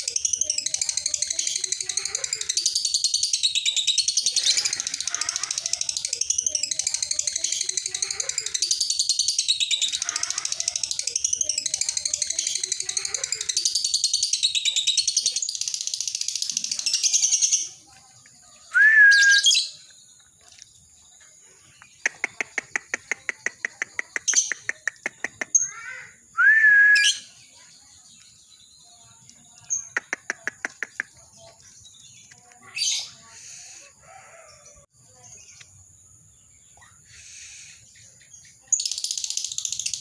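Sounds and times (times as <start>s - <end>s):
lovebird trilling: 0.0s - 17.8s
bird sharp rising calls: 18.7s - 19.8s.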